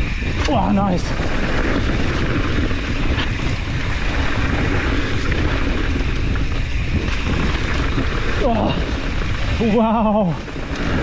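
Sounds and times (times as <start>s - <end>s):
mountain bike rattling on rocks: 0.0s - 11.0s
wind buffeting microphone: 0.0s - 11.0s.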